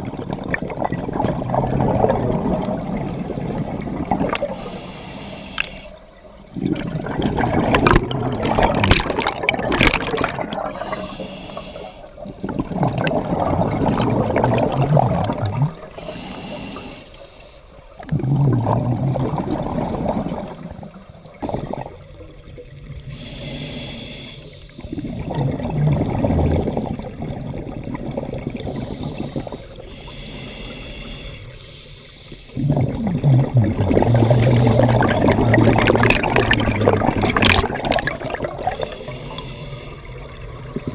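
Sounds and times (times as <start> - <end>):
exhaust bubbles bubbling: 0.0 - 4.6, 6.4 - 11.0, 12.2 - 16.0, 18.0 - 23.1, 24.9 - 29.6, 32.6 - 38.9
regulator breathing hiss: 4.6 - 6.0, 10.7 - 12.2, 16.0 - 17.9, 23.1 - 25.1, 28.7 - 32.6, 38.1 - 40.2.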